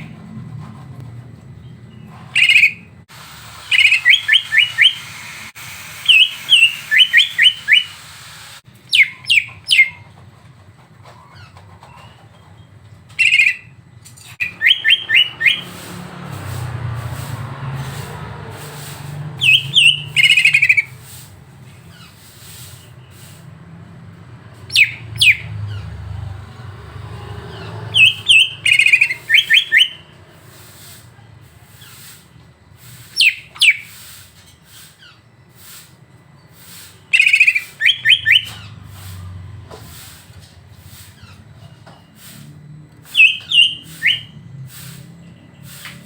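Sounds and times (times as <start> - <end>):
songbird chirps and trills: 19.4 - 20.8, 43.0 - 44.4.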